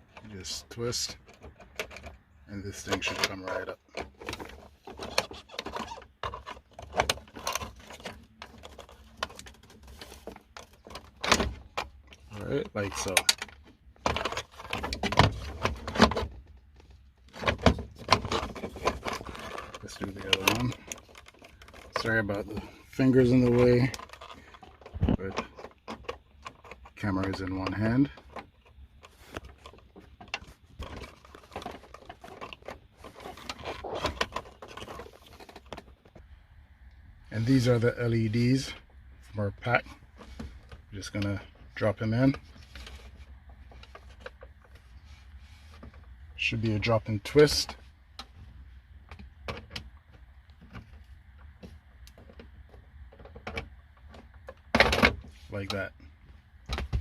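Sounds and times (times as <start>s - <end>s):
small plastic clicks and scrapes: 2.8s - 36.2s.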